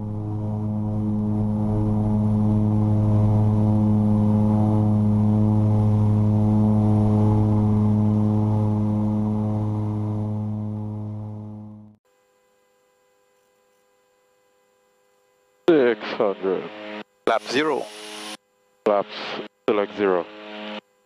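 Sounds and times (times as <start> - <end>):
turboprop propeller hum: 0.0 - 12.0.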